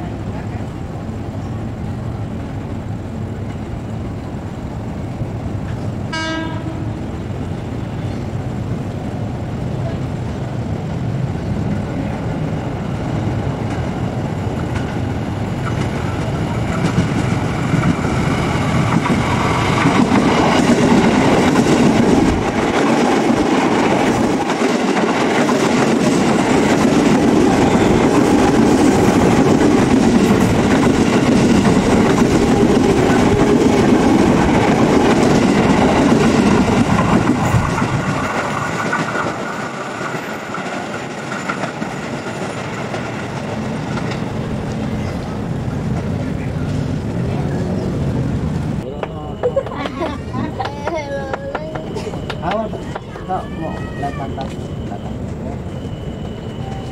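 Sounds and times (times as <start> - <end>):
electric train passing: 0.0 - 56.9
train wheels clacking over rails: 13.4 - 47.2, 48.5 - 56.9.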